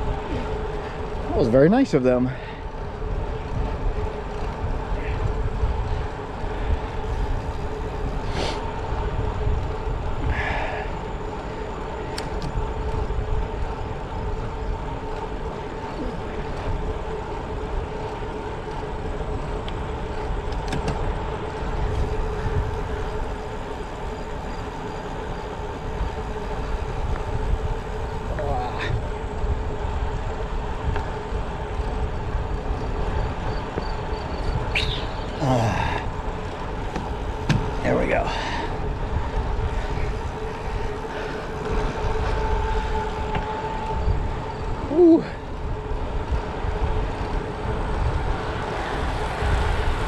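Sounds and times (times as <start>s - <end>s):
bicycle road noise: 0.0s - 50.0s
steady hum: 0.0s - 50.0s
wind rumbling on microphone: 0.0s - 50.0s.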